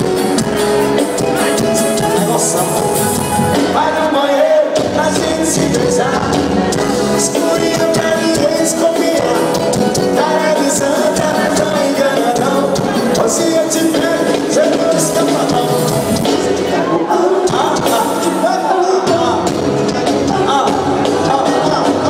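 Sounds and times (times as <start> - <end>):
band music with steady beat: 0.0 - 22.0.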